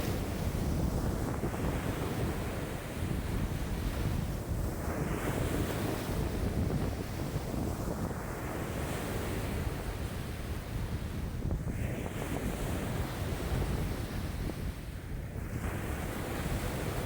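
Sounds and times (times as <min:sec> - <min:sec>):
lake waves washing: 0:00.0 - 0:11.2
wind buffeting microphone: 0:00.0 - 0:17.0.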